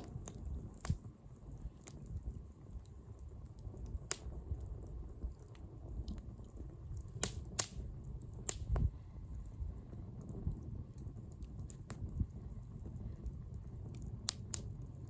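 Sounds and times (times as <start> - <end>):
bonfire crackling pops: 0.0 - 15.0
low fire rumble: 0.0 - 15.0.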